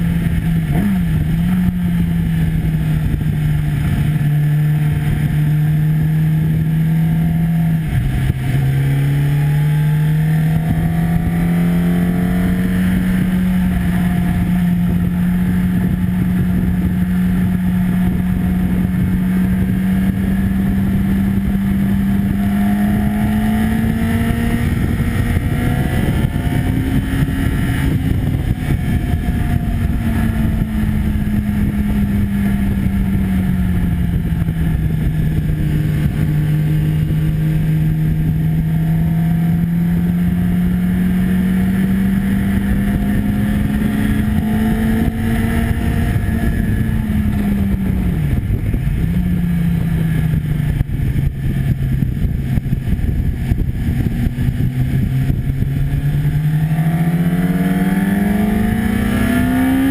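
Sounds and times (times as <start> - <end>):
motorcycle engine pulling hard: 0.0 - 59.9
wind rush: 0.0 - 59.9.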